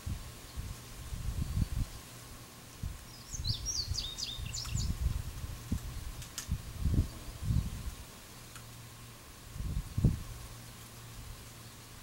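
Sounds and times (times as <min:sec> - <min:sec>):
wind rumbling on microphone: 0:00.0 - 0:11.5
songbird twittering: 0:03.0 - 0:05.0.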